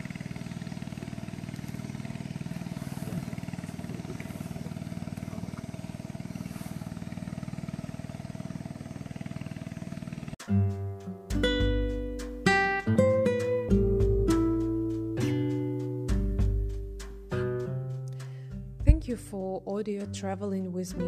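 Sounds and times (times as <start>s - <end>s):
boat engine pulsing: 0.0s - 10.4s, 18.2s - 21.0s.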